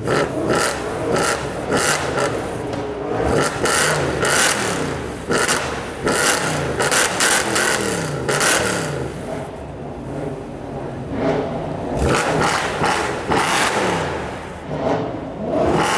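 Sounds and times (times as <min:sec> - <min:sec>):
car exhaust revving with pops: 0:00.0 - 0:09.6, 0:11.1 - 0:15.9.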